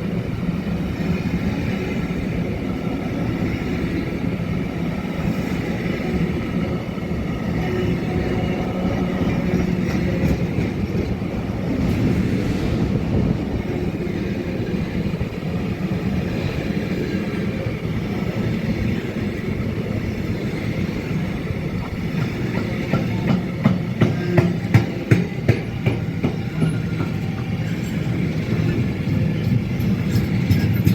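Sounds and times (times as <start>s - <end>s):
train rumbling along track: 0.0s - 30.9s
wheels clicking over rail joints: 16.0s - 30.9s.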